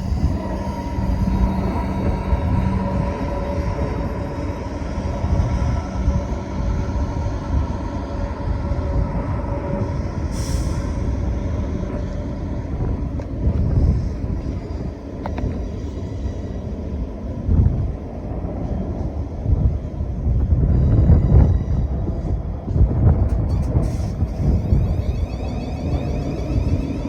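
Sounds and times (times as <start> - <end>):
faint whining tones: 0.0 - 27.0
train low rumble: 0.0 - 27.0
air brake hiss: 10.3 - 11.2.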